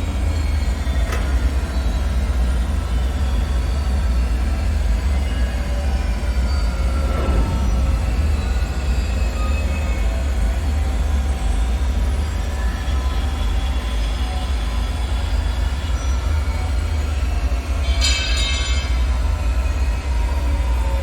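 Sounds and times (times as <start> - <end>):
deep rumble: 6.6 - 12.3.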